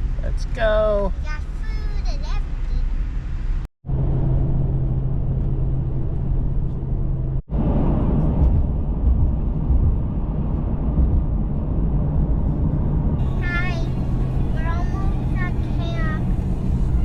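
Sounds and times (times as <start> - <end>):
truck engine drone and road rumble: 0.0 - 17.0
constant hum: 3.9 - 17.0.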